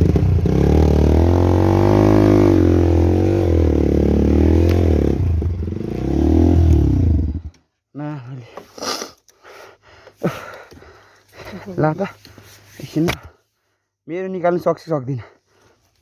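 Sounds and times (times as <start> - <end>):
motorcycle engine revving: 0.0 - 7.5.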